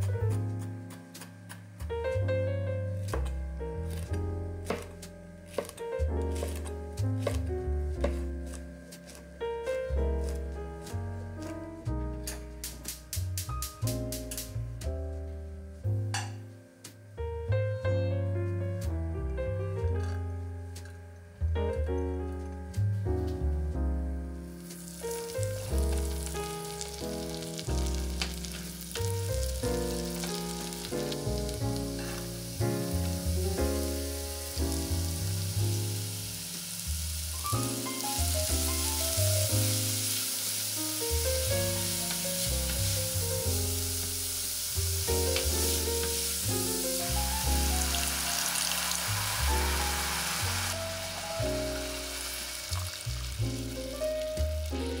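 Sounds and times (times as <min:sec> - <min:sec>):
background music: 0:00.0 - 0:55.0
food sizzling in butter: 0:24.6 - 0:55.0.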